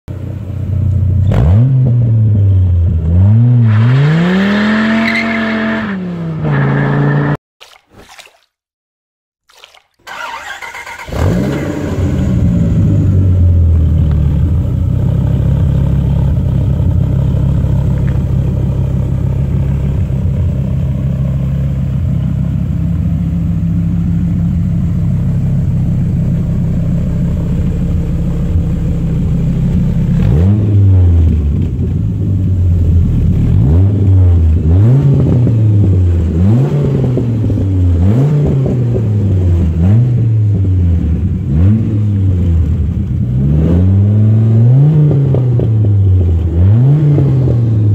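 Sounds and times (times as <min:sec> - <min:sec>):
car engine revving: 0:01.2 - 0:07.4, 0:10.1 - 0:21.3, 0:22.9 - 0:47.9
car engine starting and idling: 0:10.0 - 0:47.9.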